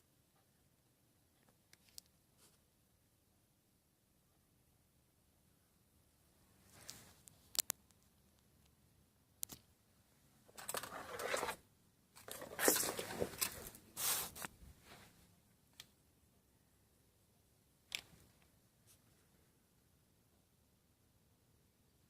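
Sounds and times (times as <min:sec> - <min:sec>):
scraping or rustling: 0:10.5 - 0:11.6, 0:12.2 - 0:15.2.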